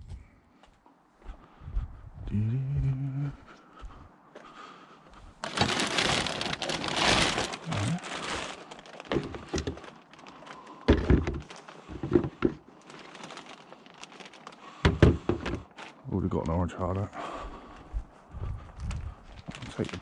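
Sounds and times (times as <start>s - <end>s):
items knocking and thunking: 5.4s - 10.2s, 10.8s - 13.6s, 14.2s - 15.9s
rubbish rustling and crinkling: 5.4s - 16.1s, 18.8s - 20.0s.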